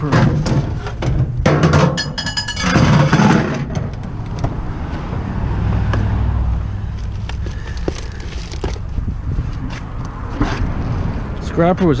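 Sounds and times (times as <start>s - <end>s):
knocks and clattering: 0.0s - 4.6s.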